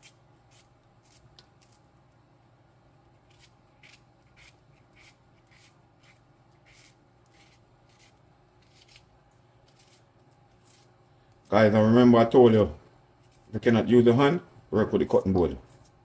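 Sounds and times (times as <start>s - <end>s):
knife slicing onion: 0.0s - 2.0s, 2.9s - 11.0s.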